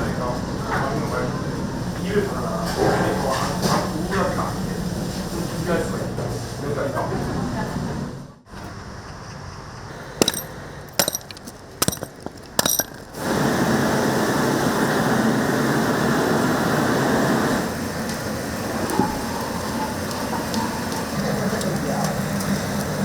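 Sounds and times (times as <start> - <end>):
sharp metal clinks: 10.2 - 13.2.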